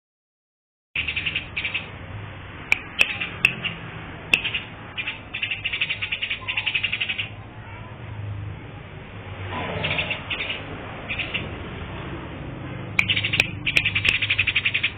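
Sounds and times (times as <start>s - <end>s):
bird singing chattering trills: 1.0s - 2.0s, 2.7s - 7.4s, 9.8s - 11.5s, 13.0s - 14.9s
sharp clicks: 2.7s - 4.6s, 13.0s - 14.9s.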